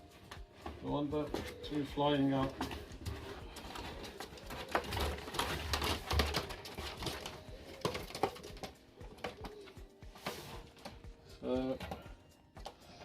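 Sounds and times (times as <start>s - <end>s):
quails shuffling in a box: 0.7s - 8.7s.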